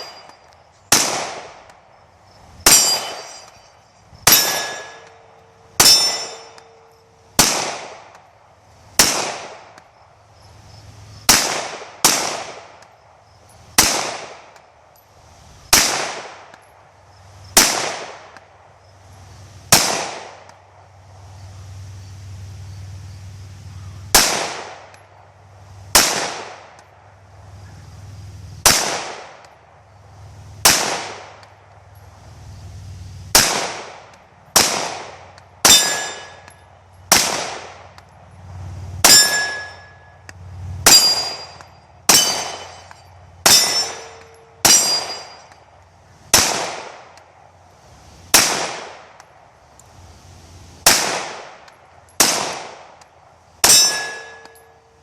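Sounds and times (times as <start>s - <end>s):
metallic clang of steel targets: 0.0s - 1.2s, 2.6s - 7.5s, 35.6s - 37.4s, 39.0s - 45.7s, 53.6s - 55.0s
pistol single shots: 0.0s - 1.8s, 2.6s - 3.4s, 4.2s - 5.2s, 7.4s - 8.3s, 9.0s - 9.8s, 11.3s - 12.8s, 13.8s - 14.6s, 15.7s - 16.6s, 17.6s - 18.4s, 19.7s - 20.6s, 24.1s - 25.0s, 25.9s - 26.9s, 28.6s - 29.6s, 30.6s - 31.6s, 33.3s - 38.1s, 40.8s - 45.6s, 46.3s - 47.2s, 48.3s - 49.3s, 50.8s - 54.6s.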